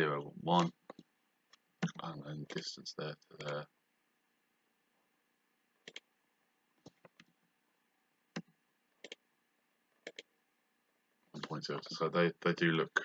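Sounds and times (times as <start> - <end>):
computer mouse clicking: 5.8 - 6.1, 8.4 - 9.2, 10.0 - 10.3.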